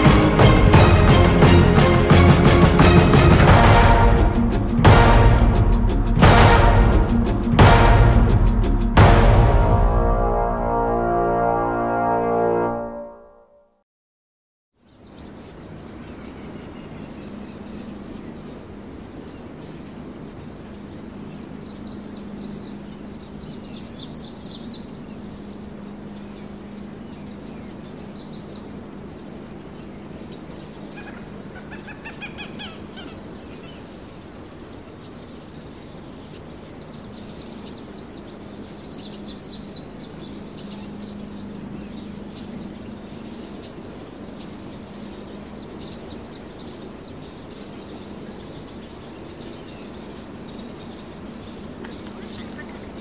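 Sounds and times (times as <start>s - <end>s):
outdoor background noise: 14.8s - 53.0s
soft bird calls: 14.8s - 53.0s
songbirds giving high trills: 14.8s - 53.0s
low hum: 36.3s - 53.0s.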